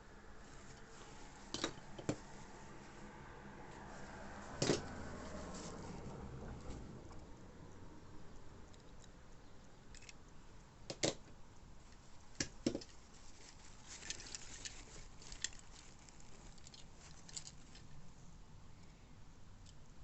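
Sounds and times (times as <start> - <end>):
plastic packaging crinkling: 12.7 - 18.0.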